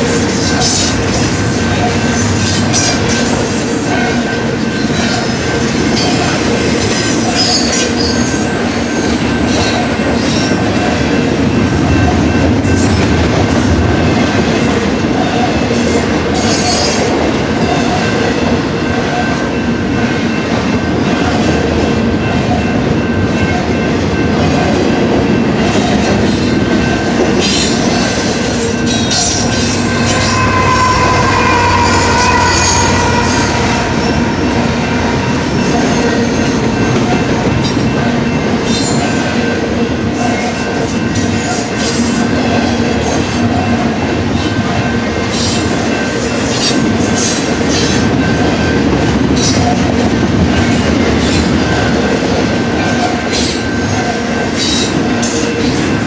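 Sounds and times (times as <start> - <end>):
freight train wheels rumbling: 0.0 - 56.0
high wheel squeals: 27.4 - 39.2.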